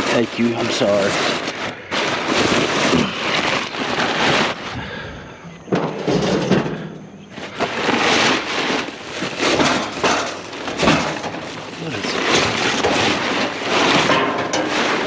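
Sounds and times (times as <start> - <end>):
metal grill rattling and clattering: 5.7 - 15.0.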